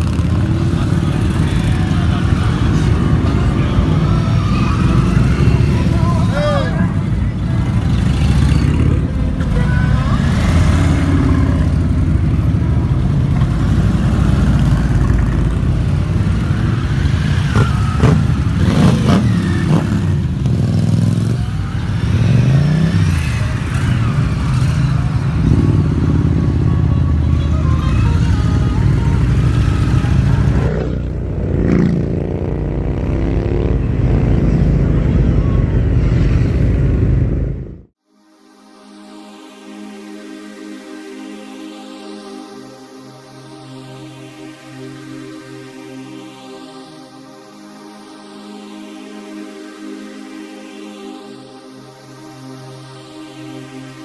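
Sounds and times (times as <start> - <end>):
music: 0.0 - 30.8, 38.0 - 54.0
motorcycle engines rumbling: 0.0 - 37.9.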